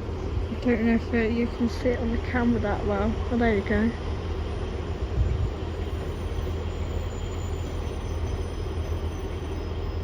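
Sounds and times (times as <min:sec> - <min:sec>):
diesel train engine and wheel rumble: 0:00.0 - 0:10.0
faint high-pitched squeals: 0:03.9 - 0:10.0.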